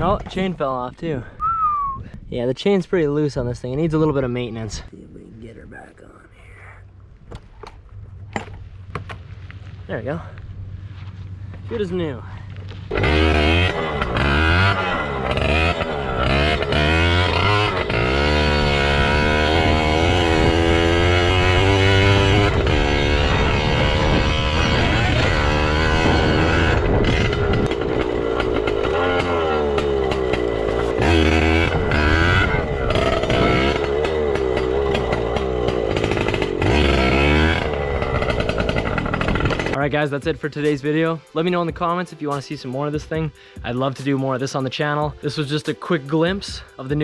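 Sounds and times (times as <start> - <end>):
two-stroke engine revving: 12.9 - 47.0.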